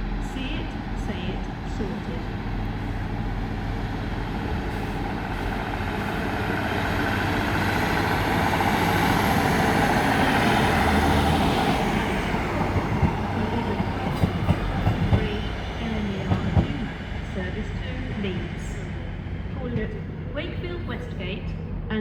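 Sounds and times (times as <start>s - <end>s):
train rumble and hiss: 0.0s - 22.0s
train wheels clanking over rail joints: 4.3s - 17.4s.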